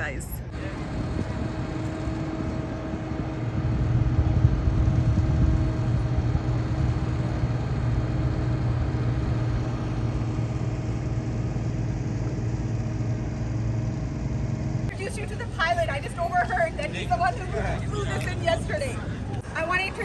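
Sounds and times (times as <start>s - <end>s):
jet engines rumbling: 0.0s - 20.0s
steady engine hum: 0.0s - 20.0s.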